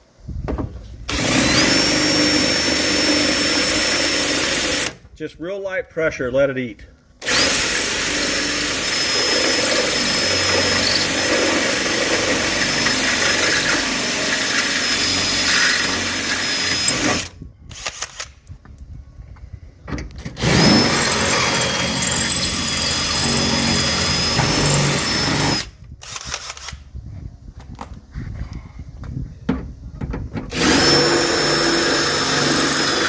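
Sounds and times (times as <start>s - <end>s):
power drill drilling metal: 1.1s - 5.0s, 7.2s - 18.3s, 20.4s - 26.8s, 30.5s - 33.0s.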